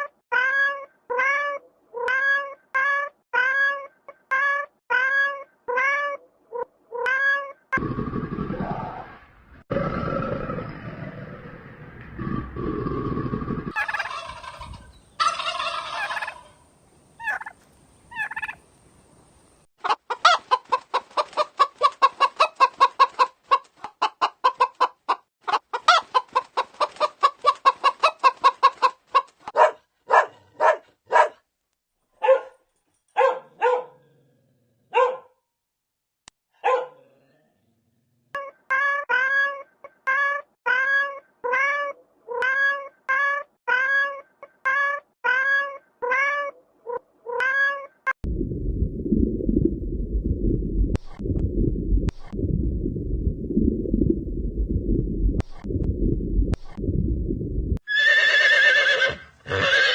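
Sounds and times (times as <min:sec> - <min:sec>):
domestic fowl calling: 0:13.7 - 0:16.6, 0:17.2 - 0:18.6.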